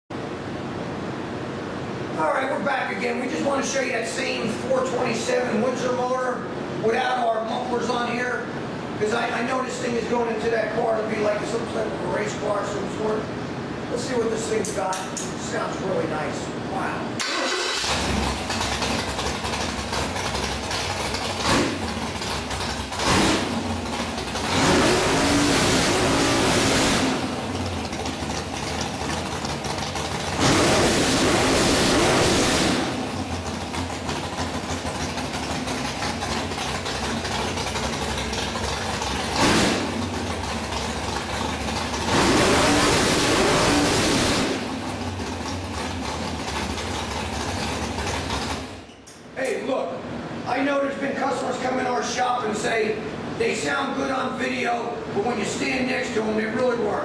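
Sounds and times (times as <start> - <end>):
car engine idling and revving: 17.2 - 48.9.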